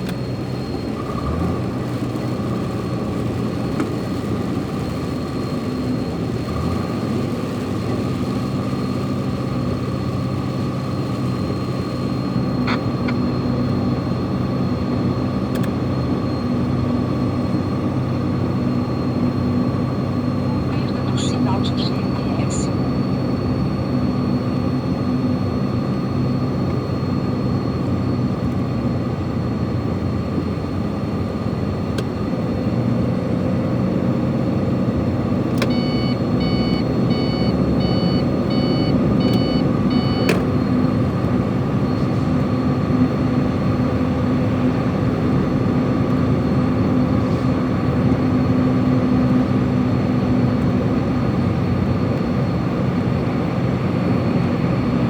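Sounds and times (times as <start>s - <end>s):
truck engine running: 0.0s - 55.0s
electronic beeps: 20.2s - 23.1s, 35.7s - 40.9s.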